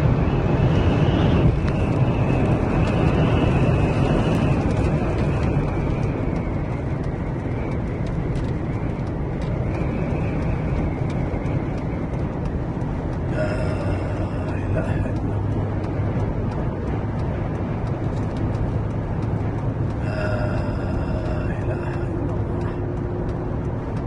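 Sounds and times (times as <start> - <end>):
strong wind rumbling on microphone: 0.0 - 24.0.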